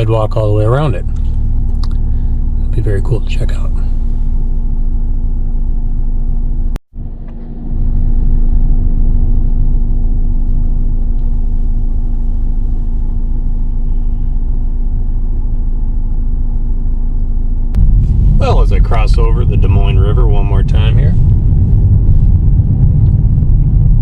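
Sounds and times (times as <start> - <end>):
car road noise: 0.0 - 24.0.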